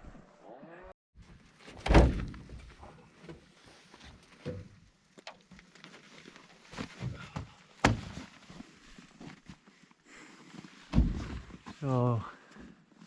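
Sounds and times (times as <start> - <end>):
knocks and thuds: 10.9 - 11.5.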